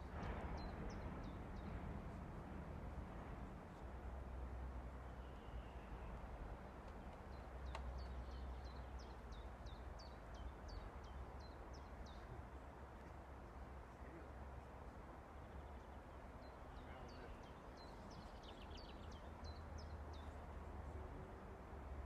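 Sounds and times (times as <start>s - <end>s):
steady low rumble: 0.0s - 4.9s.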